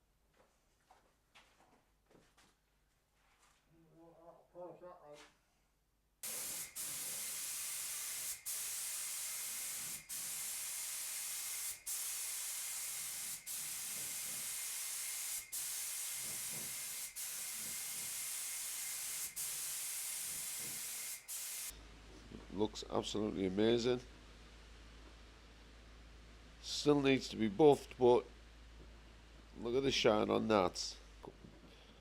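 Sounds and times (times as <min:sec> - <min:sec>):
spray gun hissing: 0:06.2 - 0:21.7.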